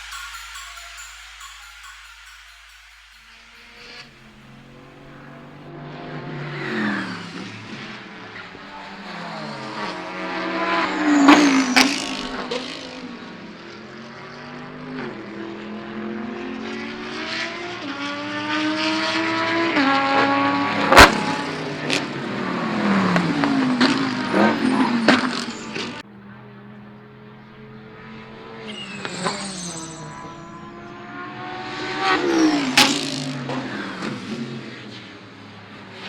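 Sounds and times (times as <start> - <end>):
sharp exhaust cracks: 0.0 - 16.0
racing car engine accelerating: 0.0 - 36.0.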